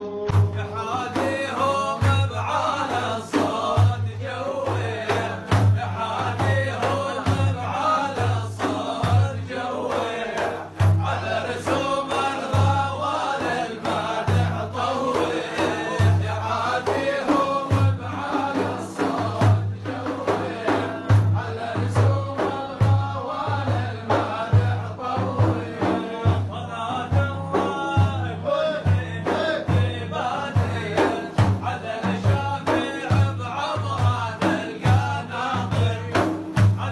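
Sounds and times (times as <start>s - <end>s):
man singing: 0.0s - 36.9s.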